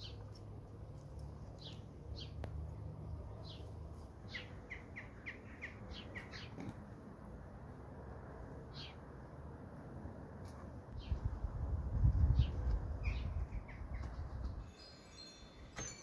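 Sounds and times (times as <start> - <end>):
small songbird chirping: 1.5 - 2.5, 3.1 - 6.6, 12.1 - 16.0.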